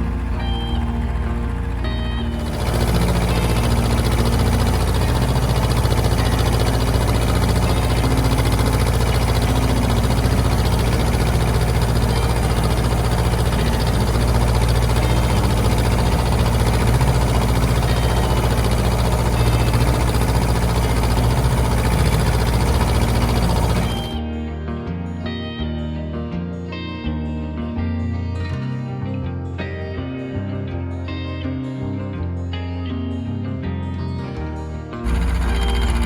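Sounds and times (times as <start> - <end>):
tractor diesel engine running: 0.0 - 24.2, 35.0 - 36.0.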